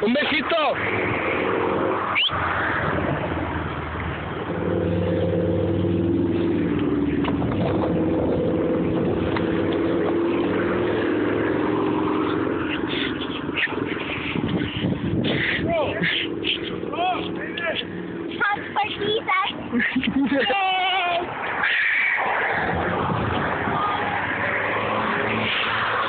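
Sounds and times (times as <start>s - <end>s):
car engine running: 4.1s - 20.4s.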